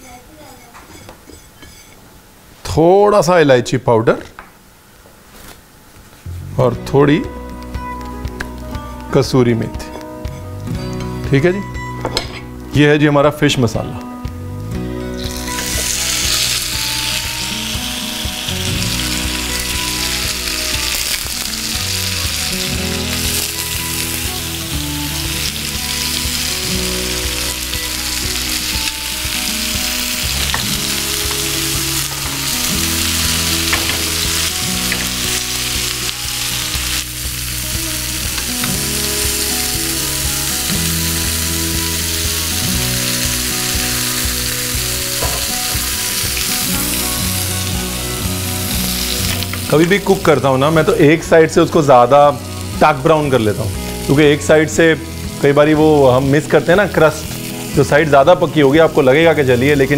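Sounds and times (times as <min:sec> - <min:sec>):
background music: 0:06.3 - 0:59.9
fish sizzling on a grill pan: 0:15.0 - 0:59.9.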